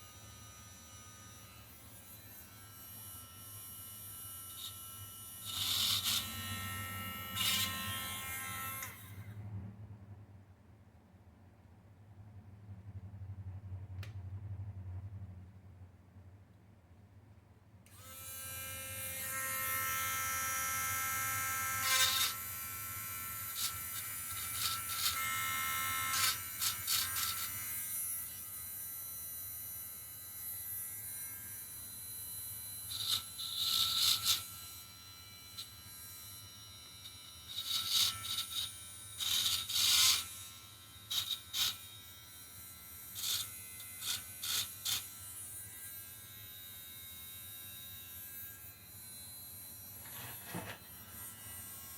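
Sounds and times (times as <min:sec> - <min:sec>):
rotary tool whining: 0:04.5 - 0:09.2, 0:50.0 - 0:51.9.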